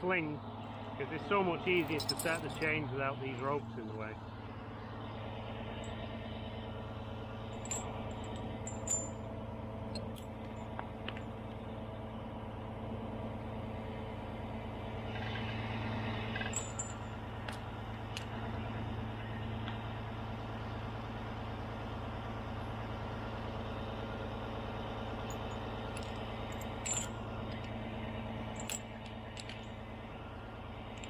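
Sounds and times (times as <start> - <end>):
crane diesel engine running: 0.0 - 31.0
sharp metallic clinks: 1.2 - 3.5, 7.4 - 9.3, 9.9 - 10.7, 16.3 - 18.4, 25.2 - 29.9.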